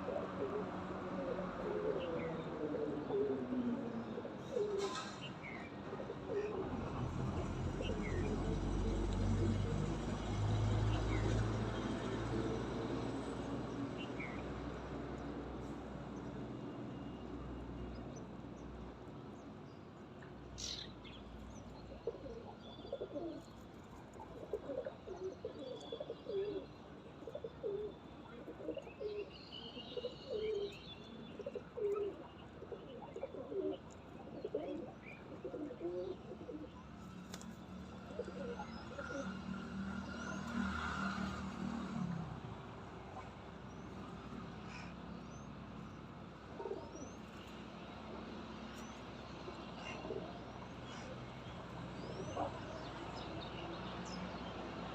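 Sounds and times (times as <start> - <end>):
pigeons cooing: 0.0 - 6.8, 21.9 - 23.5, 24.2 - 29.3, 29.9 - 36.9, 38.0 - 39.4, 46.5 - 47.0, 49.7 - 51.1, 52.0 - 52.8.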